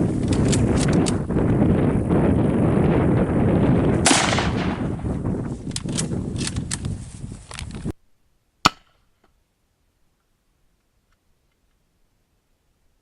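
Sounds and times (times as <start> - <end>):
wind rumbling on microphone: 0.0 - 8.0
sharp clicks: 0.2 - 1.3, 5.6 - 7.8
rifle shot: 4.0 - 5.0
sharp crack: 4.0 - 5.0, 8.6 - 9.4.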